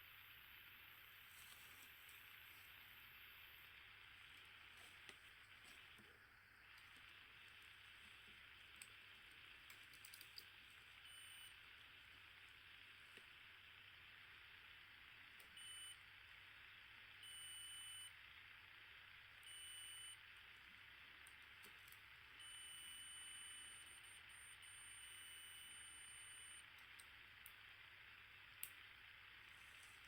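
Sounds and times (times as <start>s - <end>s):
multimeter high beeps: 11.0s - 11.6s, 15.6s - 16.0s, 17.2s - 18.1s, 19.5s - 20.2s, 22.4s - 26.7s.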